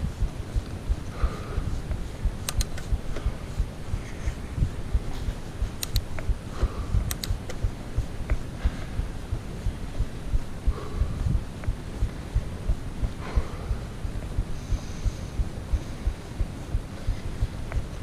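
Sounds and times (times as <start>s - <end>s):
sharp clicks: 1.9s - 3.3s, 5.6s - 6.4s, 7.0s - 8.4s.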